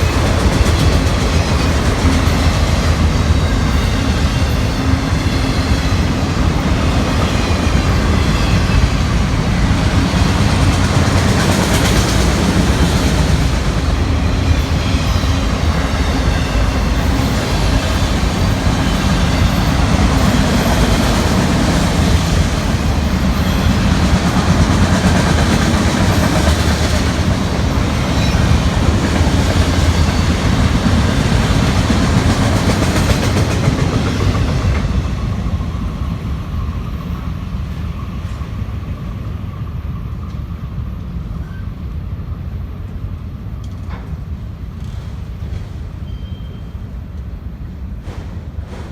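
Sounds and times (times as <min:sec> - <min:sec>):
freight train cars rolling past: 0:00.0 - 0:48.9.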